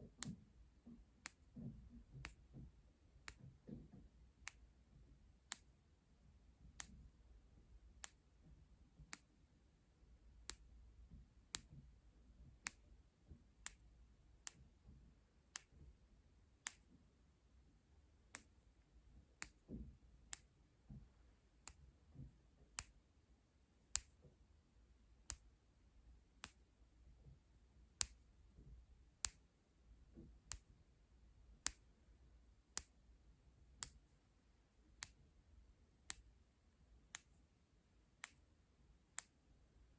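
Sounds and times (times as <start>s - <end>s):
sharp light clicks: 11.5s - 11.7s, 12.6s - 12.9s, 19.4s - 19.7s, 23.8s - 24.2s, 26.4s - 26.7s, 28.0s - 28.3s, 30.5s - 30.7s, 31.6s - 31.9s, 37.1s - 37.4s.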